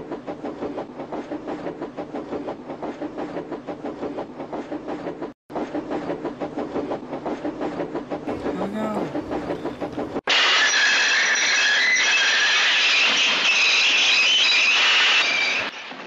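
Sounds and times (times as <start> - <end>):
rhythmic clatter of moving train: 0.0 - 16.0.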